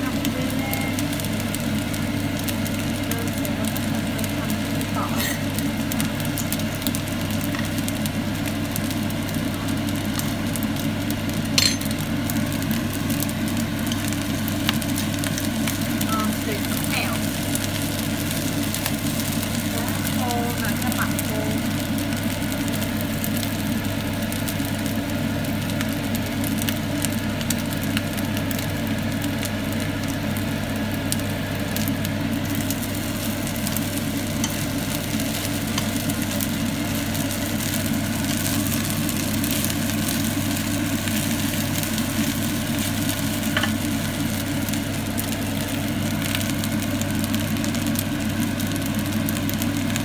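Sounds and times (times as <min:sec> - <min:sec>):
rice sizzling in frying pan: 0:00.0 - 0:50.0
steady low hum: 0:00.0 - 0:50.0.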